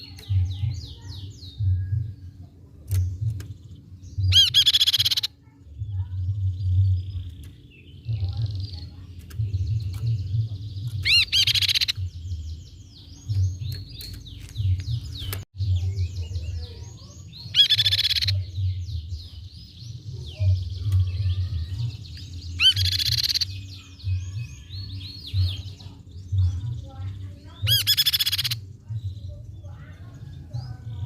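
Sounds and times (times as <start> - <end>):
bird trilled calls: 2.9 - 19.4, 20.2 - 31.0.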